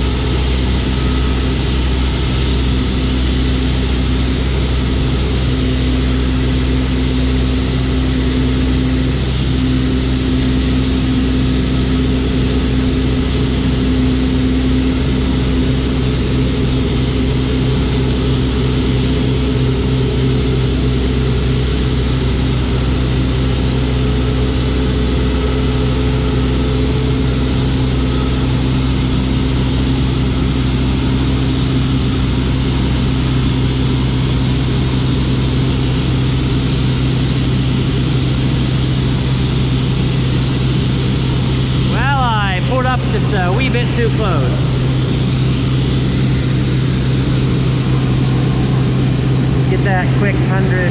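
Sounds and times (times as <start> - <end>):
farm machine engine droning: 0.0 - 50.9.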